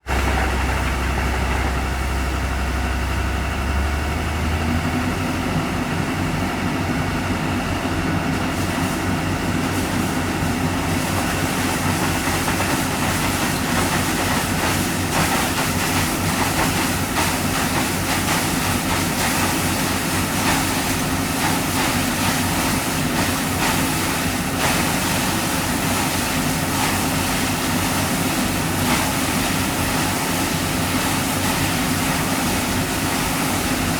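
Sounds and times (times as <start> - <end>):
drilling rig engine droning: 0.1 - 8.3.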